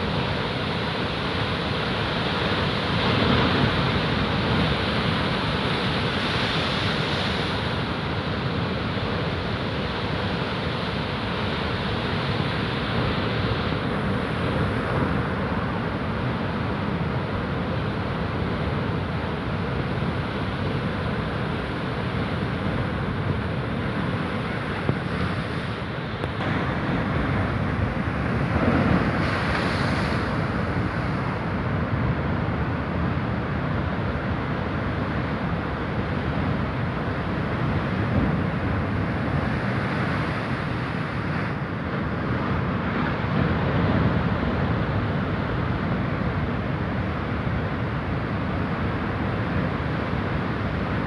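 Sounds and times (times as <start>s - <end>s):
waves and surf rushing: 0.0s - 51.0s
sea surf breaking against rocks: 26.4s - 33.0s.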